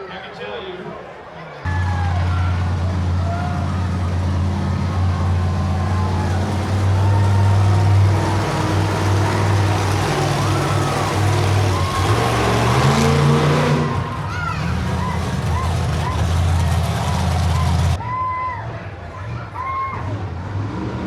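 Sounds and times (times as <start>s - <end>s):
monster truck engine running: 1.7s - 18.0s.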